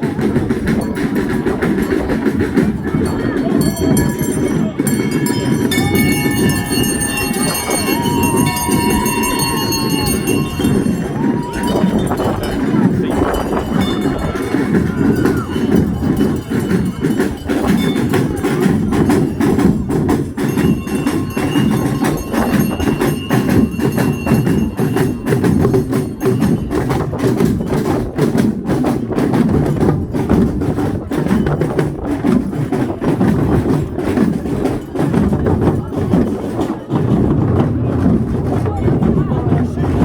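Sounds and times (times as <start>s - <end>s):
drum and percussion band playing: 0.0s - 40.0s.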